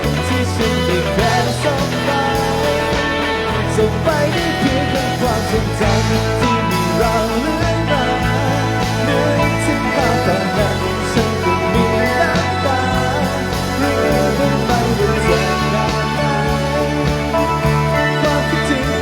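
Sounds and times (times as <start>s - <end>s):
live band instrumental music: 0.0s - 19.0s.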